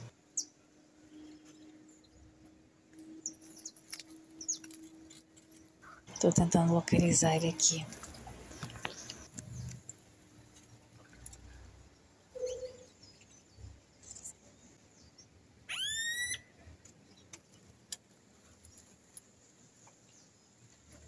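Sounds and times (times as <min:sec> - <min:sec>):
rising whining bird call: 0:15.7 - 0:16.5.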